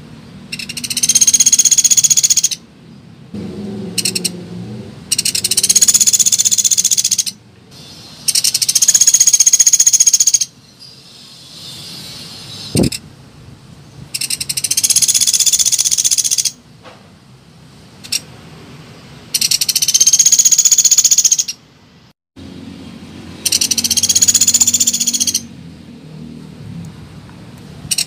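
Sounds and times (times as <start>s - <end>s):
woodpecker trilling calls: 0.5s - 2.6s, 4.0s - 4.3s, 5.1s - 13.0s, 14.2s - 16.6s, 19.3s - 21.6s, 23.4s - 25.5s.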